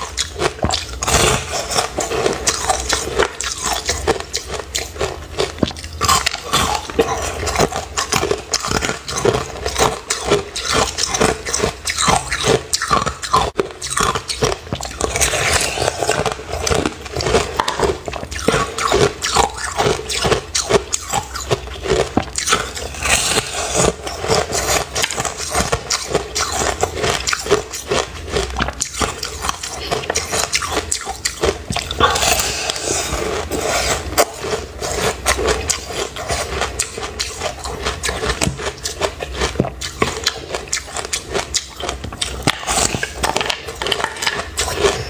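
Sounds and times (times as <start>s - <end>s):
person chewing crunchy ice: 0.0s - 45.0s.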